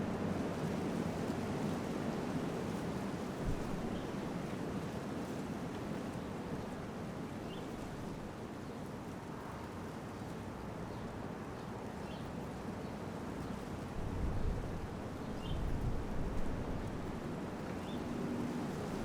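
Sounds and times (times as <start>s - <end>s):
wind rumble on microphone: 0.0s - 11.9s, 12.5s - 19.0s.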